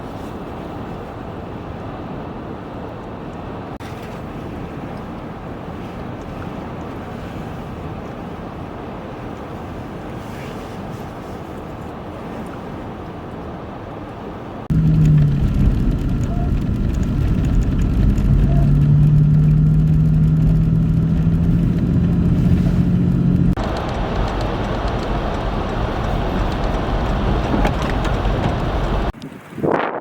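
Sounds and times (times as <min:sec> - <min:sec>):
broad rushing noise: 0:14.4 - 0:30.0
vehicle engine humming: 0:14.6 - 0:29.2.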